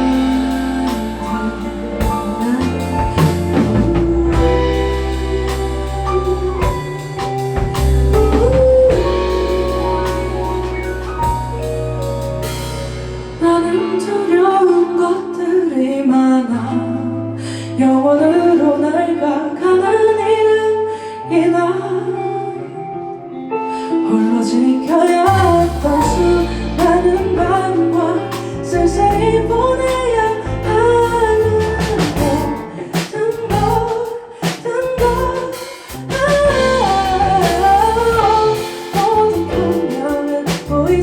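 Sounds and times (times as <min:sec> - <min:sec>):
wavering melody over sparse chords: 0:00.0 - 0:16.2
live pop ballad band: 0:00.0 - 0:41.0.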